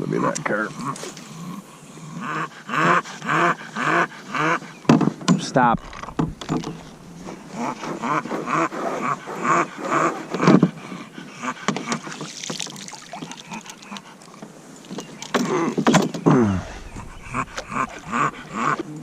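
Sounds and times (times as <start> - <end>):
dog vocalizing: 16.4 - 19.0.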